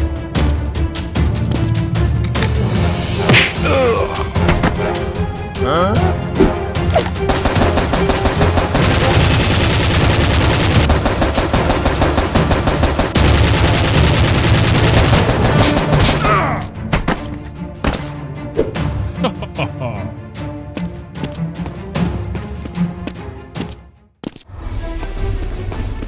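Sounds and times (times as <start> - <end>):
rapid automatic gunfire: 7.3 - 16.3.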